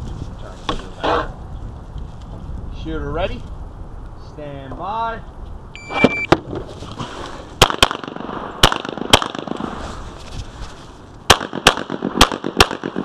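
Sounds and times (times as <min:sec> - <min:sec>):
pistol shots: 0:07.6 - 0:09.8, 0:11.3 - 0:13.0.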